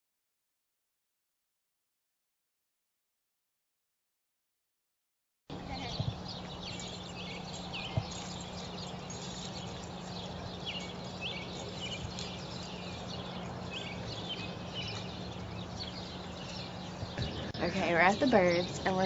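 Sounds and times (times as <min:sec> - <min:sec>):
small birds chirping: 0:05.5 - 0:19.0
steady low hum: 0:05.5 - 0:19.0.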